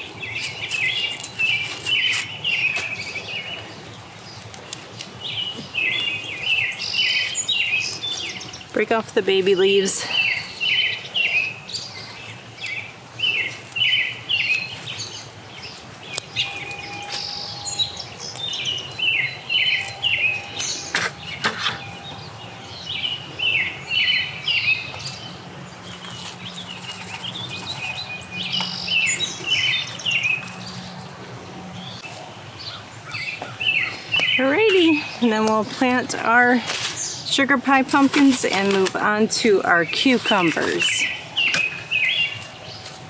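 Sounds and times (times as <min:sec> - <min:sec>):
bird chirping: 0:00.0 - 0:43.0.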